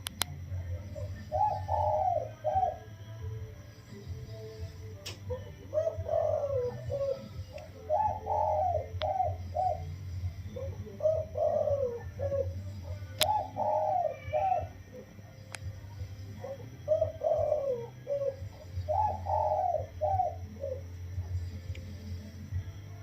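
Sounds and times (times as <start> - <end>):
sharp clicks: 0.0 - 0.4, 5.0 - 5.3, 13.1 - 13.4, 15.4 - 15.7
steady low hum: 0.0 - 23.0
dove cooing: 0.3 - 22.9.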